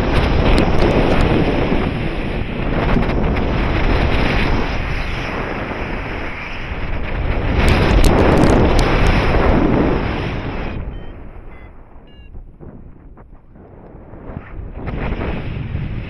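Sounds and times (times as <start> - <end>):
wind rushing over microphone: 0.0 - 16.0
sharp ticks: 7.6 - 9.2.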